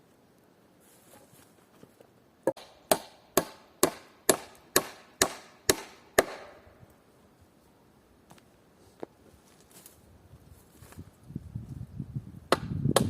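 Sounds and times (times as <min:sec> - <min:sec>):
tool striking wood: 0:02.4 - 0:06.6, 0:12.5 - 0:13.0.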